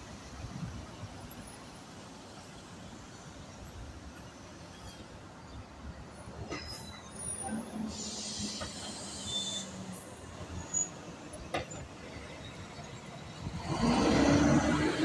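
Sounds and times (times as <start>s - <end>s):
city street traffic: 0.0s - 15.0s
hiss: 7.9s - 10.1s
vehicle passing close: 13.5s - 15.0s.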